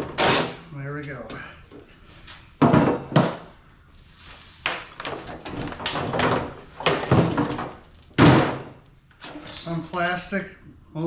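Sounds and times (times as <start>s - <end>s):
knocks and bang: 2.6s - 3.6s, 5.0s - 8.8s.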